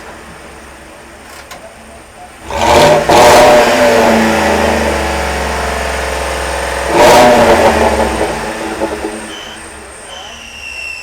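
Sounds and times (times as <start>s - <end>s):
engine revving: 2.4s - 10.4s.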